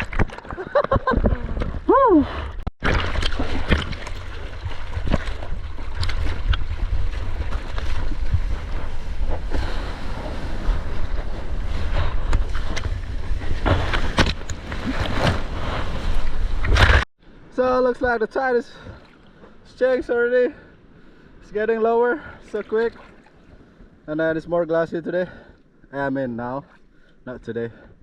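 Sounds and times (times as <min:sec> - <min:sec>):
sea water rushing and splashing: 0:02.8 - 0:17.0
wind buffeting microphone: 0:04.2 - 0:16.7.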